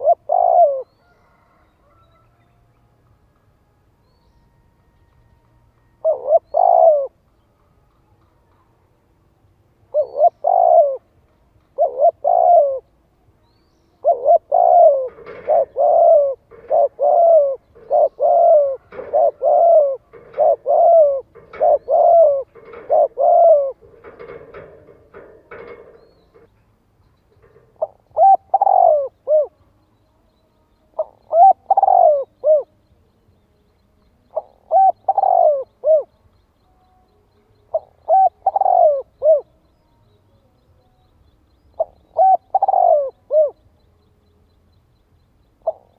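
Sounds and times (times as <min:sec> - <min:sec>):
dove cooing: 0:00.0 - 0:02.0, 0:06.0 - 0:07.2, 0:09.9 - 0:11.1, 0:11.7 - 0:12.9, 0:14.0 - 0:26.5, 0:27.4 - 0:29.6, 0:31.0 - 0:32.8, 0:34.3 - 0:36.2, 0:37.7 - 0:39.7, 0:41.7 - 0:43.7, 0:45.6 - 0:45.9.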